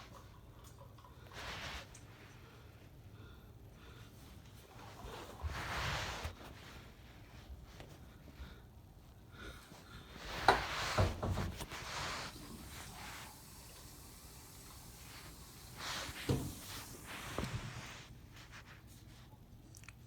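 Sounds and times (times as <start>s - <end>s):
rustling: 10.0s - 19.3s.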